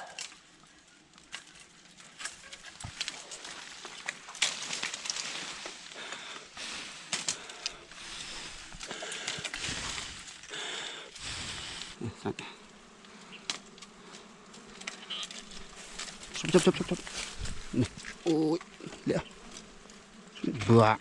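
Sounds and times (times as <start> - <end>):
bees buzzing: 1.8 - 21.0
sharp clicks and rustles: 13.0 - 18.4.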